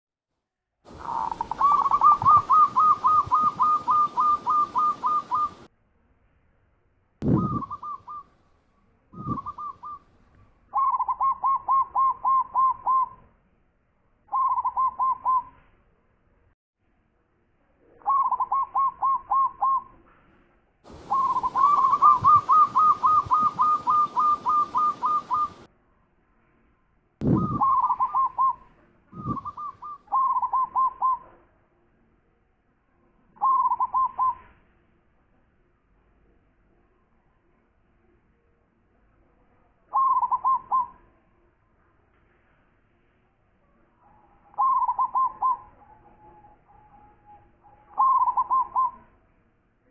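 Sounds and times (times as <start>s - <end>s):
dove cooing: 0.9s - 5.7s, 7.2s - 8.3s, 9.2s - 10.0s, 10.7s - 13.2s, 14.3s - 15.5s, 18.0s - 19.9s, 20.9s - 25.7s, 27.2s - 31.4s, 33.4s - 34.5s, 39.9s - 41.0s, 44.5s - 47.2s, 47.9s - 49.1s.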